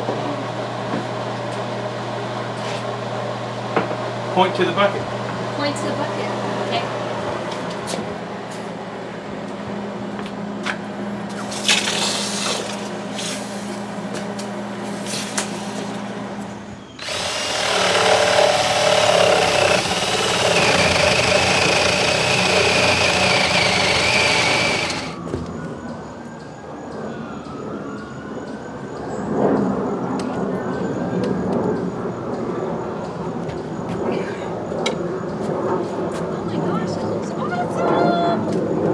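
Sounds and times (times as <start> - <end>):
electric power drill whining: 11.4 - 12.9, 17.0 - 25.2.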